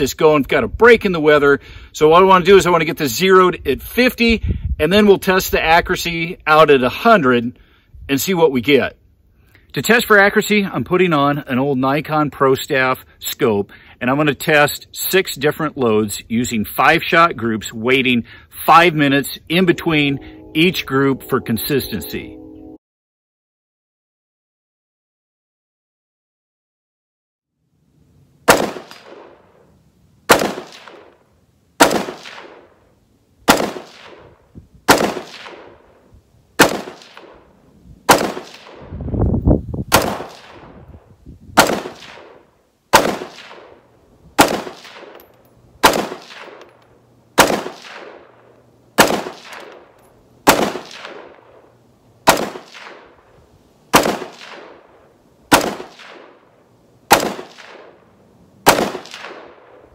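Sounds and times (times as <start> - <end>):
rifle shots with echo: 28.5 - 29.6, 30.3 - 31.2, 31.8 - 32.8, 33.5 - 36.0, 36.6 - 37.5, 38.1 - 38.9, 39.9 - 40.8, 41.6 - 46.8, 47.4 - 53.3, 53.9 - 59.9.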